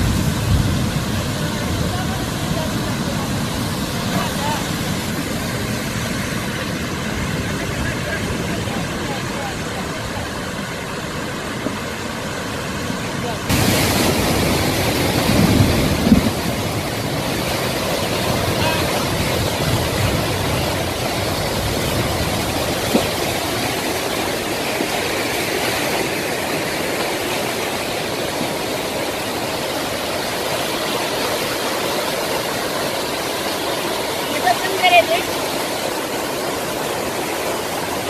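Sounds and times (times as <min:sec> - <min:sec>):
floodwater rushing and churning: 0:00.0 - 0:38.0
low thumps: 0:15.2 - 0:16.8.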